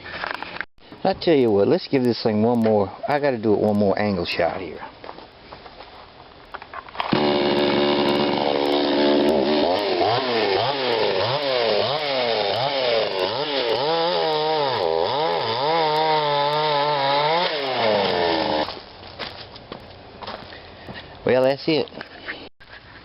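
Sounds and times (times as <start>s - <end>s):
chainsaw cutting wood: 7.0s - 18.8s.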